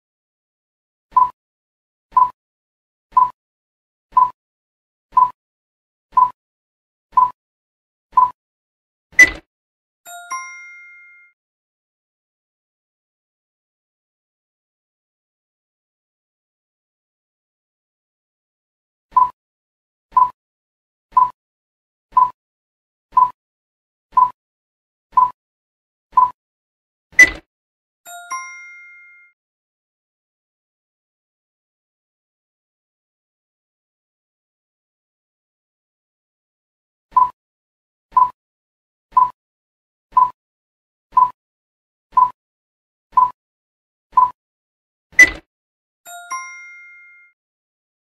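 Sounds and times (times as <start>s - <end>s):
countdown timer ticking: 3.1s - 3.4s, 4.2s - 4.4s, 5.2s - 5.4s, 8.2s - 8.4s, 20.1s - 20.4s, 21.2s - 21.4s, 22.2s - 22.4s, 23.2s - 23.4s, 24.2s - 24.4s, 25.2s - 25.4s, 26.2s - 26.4s, 37.2s - 37.4s, 38.1s - 38.4s, 39.2s - 39.4s, 40.2s - 40.4s, 41.2s - 41.4s, 42.2s - 42.4s, 43.2s - 43.4s, 44.2s - 44.4s
countdown timer pips: 39.1s - 39.4s, 40.2s - 40.4s, 41.2s - 41.4s, 42.2s - 42.4s, 43.2s - 43.4s, 44.2s - 44.4s.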